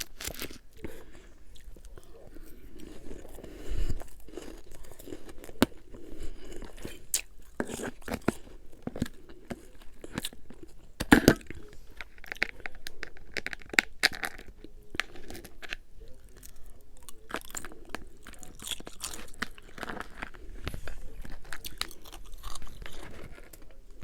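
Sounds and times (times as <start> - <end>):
ice being crunched and chewed: 0.0 - 24.0.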